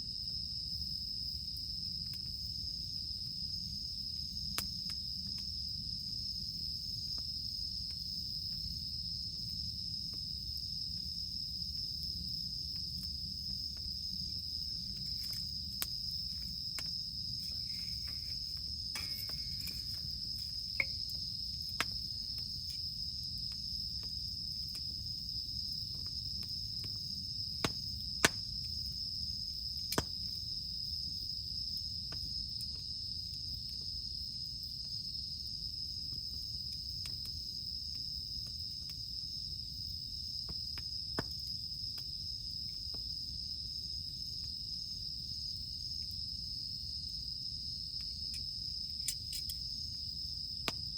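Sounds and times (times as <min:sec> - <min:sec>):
campfire crackling: 0:00.0 - 0:30.4, 0:47.9 - 0:50.9
cicadas droning: 0:00.0 - 0:50.9.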